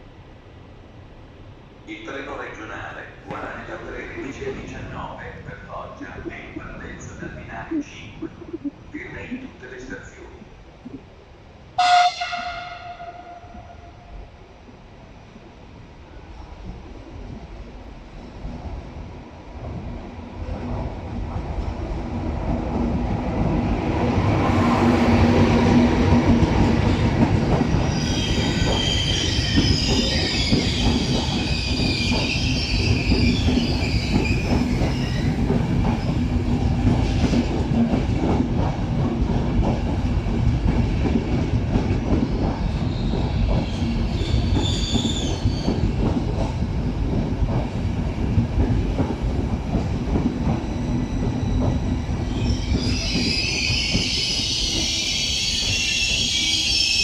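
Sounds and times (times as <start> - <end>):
train rumbling slowly: 0.0 - 57.0
high wheel squeal: 44.1 - 45.8, 52.3 - 57.0.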